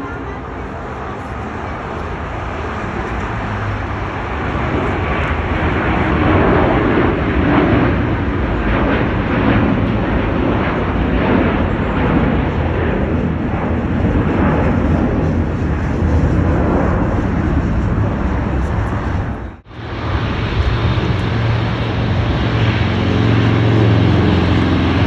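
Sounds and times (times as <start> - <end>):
jet airliner engine roar: 0.0 - 25.0.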